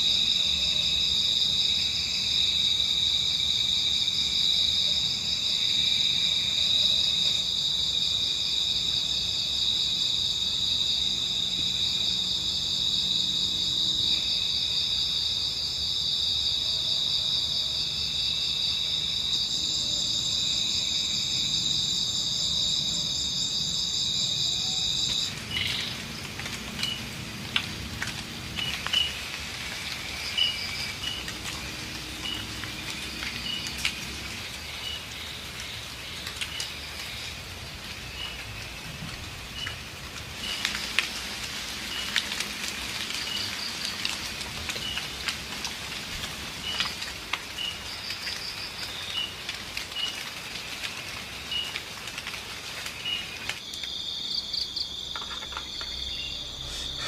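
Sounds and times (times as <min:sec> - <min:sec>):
crickets trilling: 0:00.0 - 0:57.0
light drizzle: 0:17.3 - 0:57.0.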